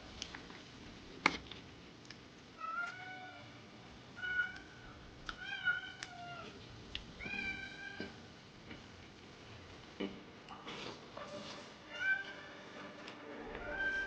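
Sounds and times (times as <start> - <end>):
cat meowing: 5.4 - 6.6, 7.2 - 8.2.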